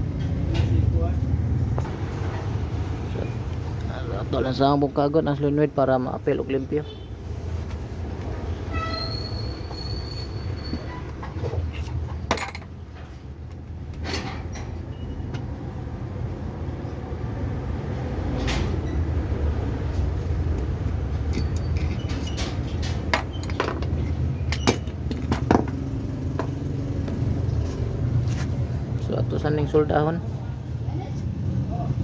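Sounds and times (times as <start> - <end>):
metal parts clicking and knocking: 11.9 - 13.1, 21.2 - 26.5.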